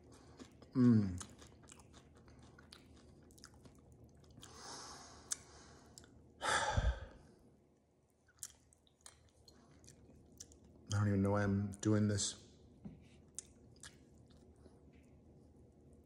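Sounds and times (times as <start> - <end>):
person chewing popcorn: 0.0 - 6.3, 8.2 - 10.9, 13.2 - 15.8
heavy breath out: 6.4 - 7.2.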